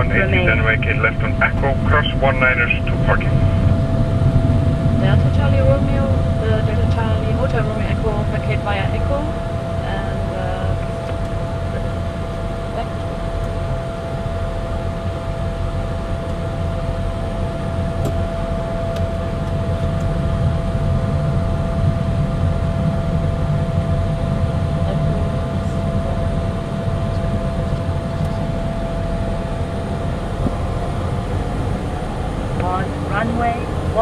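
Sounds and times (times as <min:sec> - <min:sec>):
jet engines low rumble and whine: 0:00.0 - 0:34.0.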